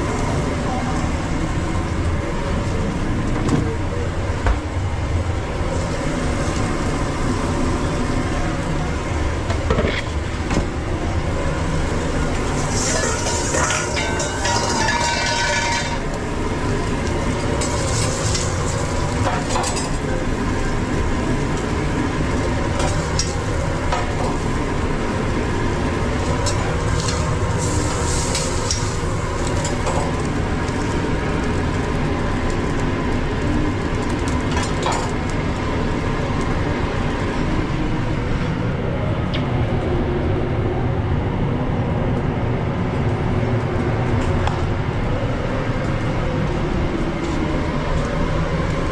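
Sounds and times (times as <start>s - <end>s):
mechanical rumble: 0.0s - 48.9s
food sizzling on a griddle: 11.2s - 37.6s.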